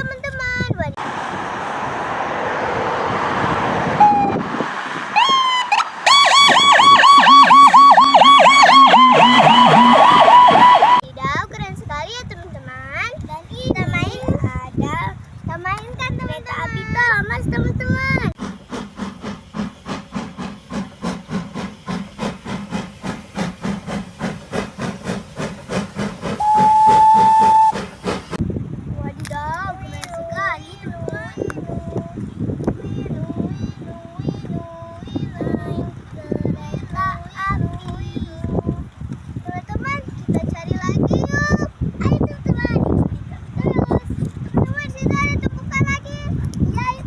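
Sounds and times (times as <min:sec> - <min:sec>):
rushing noise: 0:01.0 - 0:11.0
lower siren tone: 0:03.9 - 0:04.5, 0:05.2 - 0:11.0
toy siren yelping: 0:05.2 - 0:11.0
train whistle: 0:06.1 - 0:11.0, 0:26.3 - 0:27.9
steam locomotive chuffing: 0:06.5 - 0:11.0, 0:18.3 - 0:28.4.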